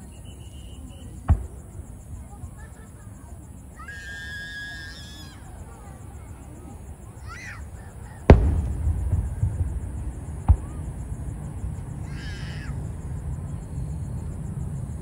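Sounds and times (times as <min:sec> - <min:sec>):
firework shells bursting: 0:08.2 - 0:12.1
low rumble: 0:08.3 - 0:12.1.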